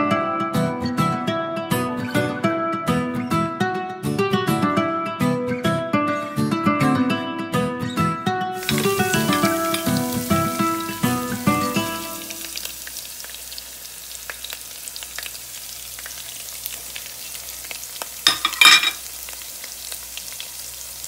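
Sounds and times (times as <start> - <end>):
food sizzling in hot oil: 8.6 - 21.0.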